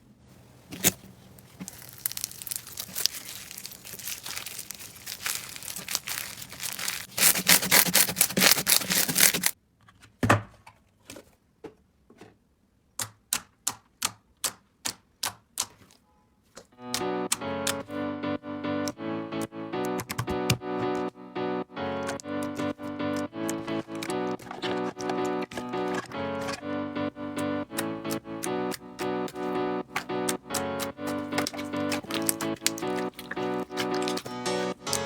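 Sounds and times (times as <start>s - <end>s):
slime crackling and popping: 0.6s - 9.6s, 27.7s - 35.0s
music: 2.2s - 7.0s, 16.8s - 35.0s.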